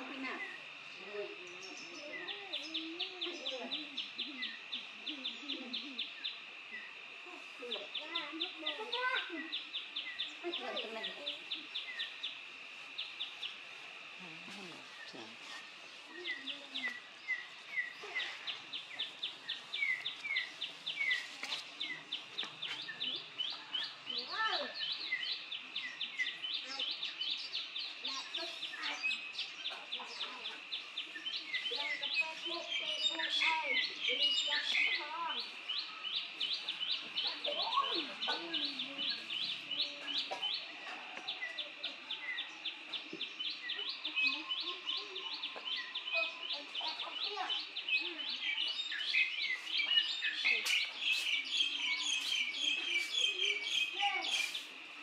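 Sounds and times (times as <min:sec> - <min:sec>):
songbird chirping: 0:00.0 - 0:55.0.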